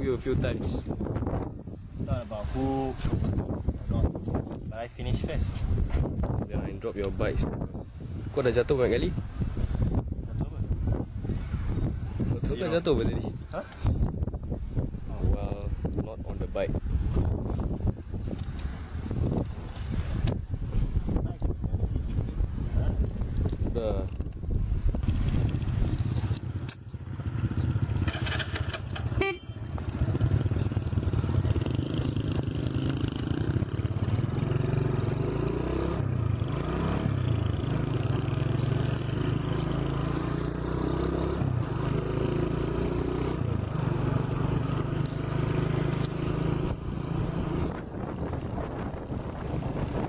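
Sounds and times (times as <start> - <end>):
small motorcycle engine revving: 27.1 - 47.8
vehicle horn honking: 29.1 - 29.8.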